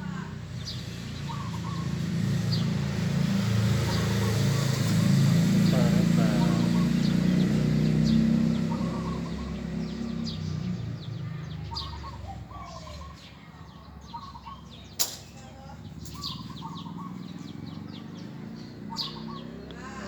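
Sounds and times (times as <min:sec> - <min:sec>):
doves cooing: 0:00.0 - 0:20.0
small birds chirping: 0:00.0 - 0:20.0
sharp click: 0:15.0 - 0:15.4.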